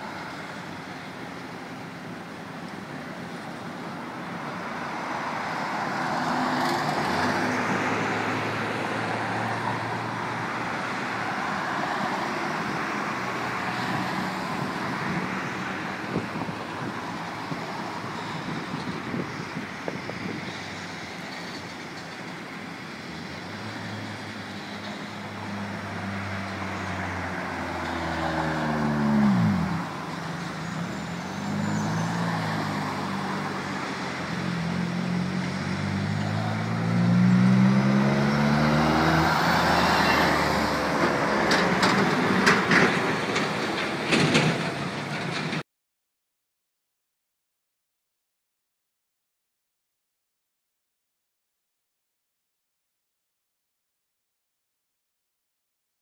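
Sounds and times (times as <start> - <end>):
road vehicle passing close: 0.0 - 45.6
road traffic: 0.0 - 45.7
train wheels on rail: 41.0 - 45.6.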